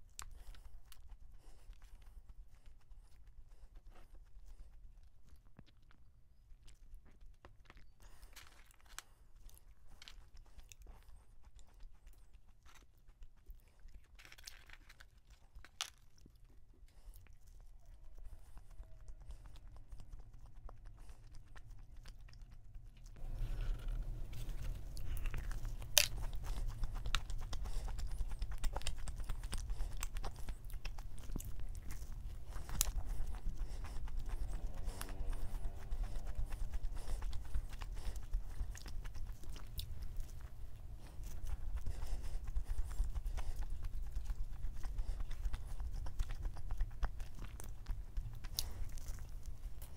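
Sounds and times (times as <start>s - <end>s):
chewing and crunching food: 0.0s - 49.9s
steady low rumble: 19.4s - 49.9s.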